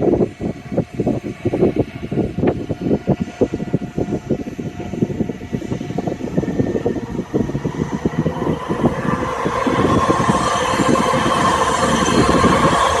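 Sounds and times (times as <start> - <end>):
high engine whine: 0.0 - 13.0
jet engines at takeoff power: 0.0 - 13.0.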